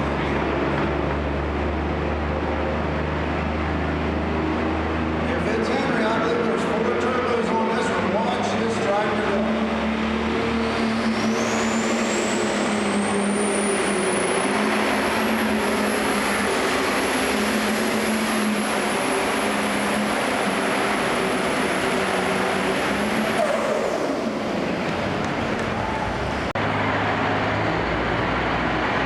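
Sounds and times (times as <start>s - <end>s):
tractor engine running loud: 0.0s - 29.0s
high turbo whistle: 10.4s - 24.5s.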